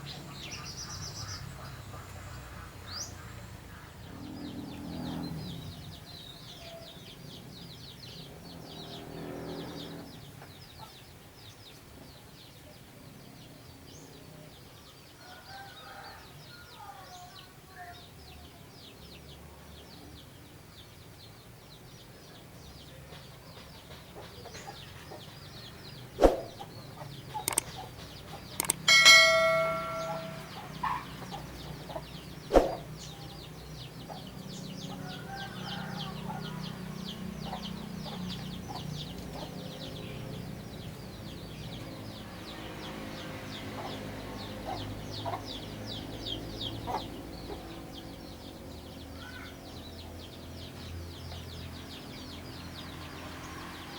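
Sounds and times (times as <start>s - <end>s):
birds chirping: 24.4s - 53.6s
sharp knocks: 28.6s - 30.6s
loud steady-pitched bird call: 28.6s - 33.8s.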